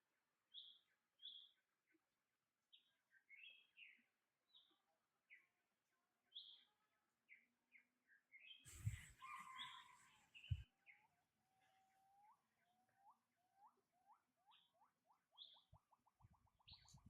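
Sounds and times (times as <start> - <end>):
faint bird chirps: 0.5 - 1.6, 6.3 - 17.0.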